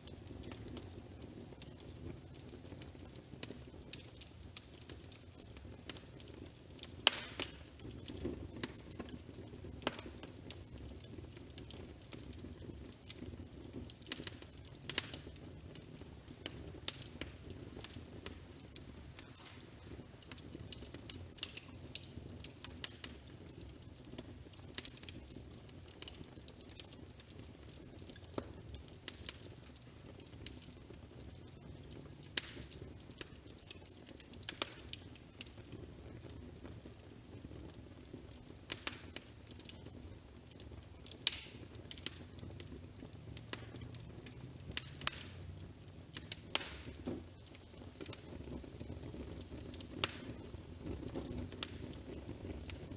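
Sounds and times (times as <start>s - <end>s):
low rumble of fire: 0.0s - 52.9s
burning wood popping and snapping: 0.1s - 52.9s.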